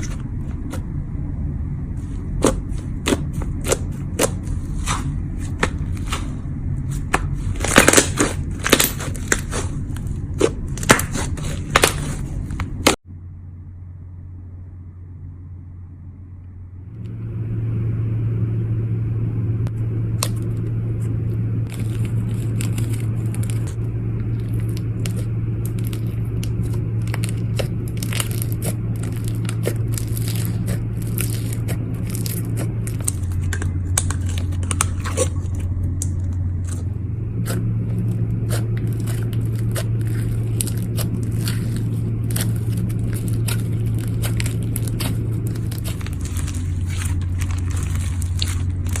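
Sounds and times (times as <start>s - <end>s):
steady low hum: 0.0s - 49.0s
slime crackling and popping: 7.2s - 13.0s, 21.7s - 36.8s, 37.4s - 49.0s.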